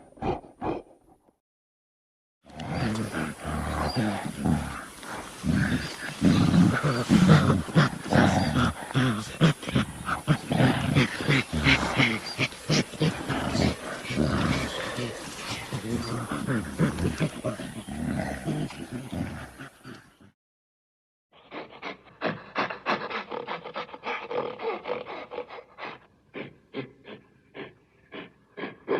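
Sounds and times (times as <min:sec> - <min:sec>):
animal panting rapidly: 0:02.9 - 0:17.8, 0:21.4 - 0:28.9.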